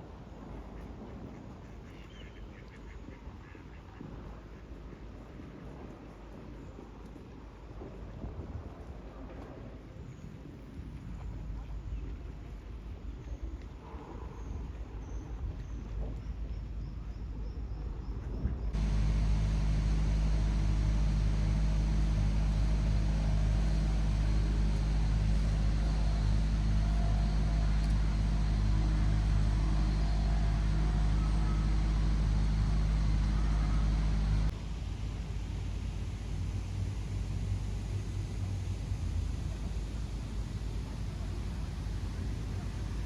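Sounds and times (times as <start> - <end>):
low mechanical rumble: 18.4 - 43.0.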